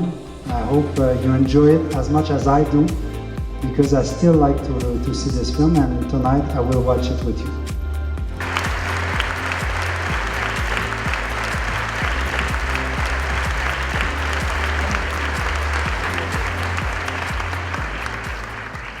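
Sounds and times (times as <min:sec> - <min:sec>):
background music with low bass: 0:00.0 - 0:19.0
audience applauding: 0:08.4 - 0:19.0.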